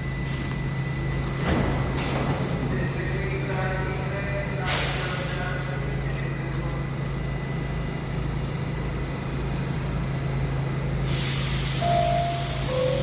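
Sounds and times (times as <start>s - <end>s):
subway train hum: 0.0s - 13.0s
air hissing: 4.6s - 5.5s, 11.0s - 13.0s
two held tones: 11.8s - 13.0s.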